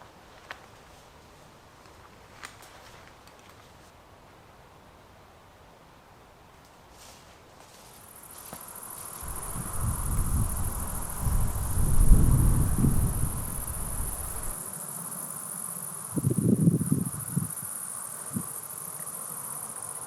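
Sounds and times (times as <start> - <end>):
insects chirring: 7.8 - 20.0
low rumbling on microphone: 9.2 - 14.6.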